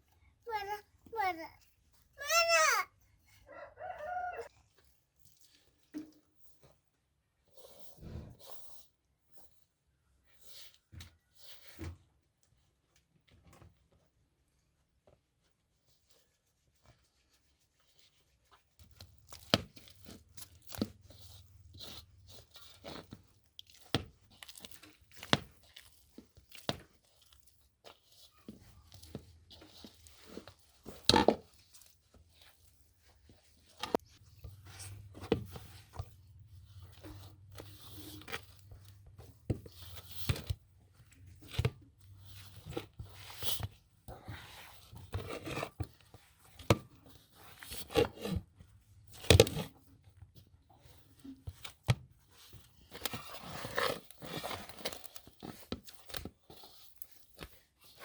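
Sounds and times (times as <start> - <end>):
food crunching and tearing: 19.0 - 27.6.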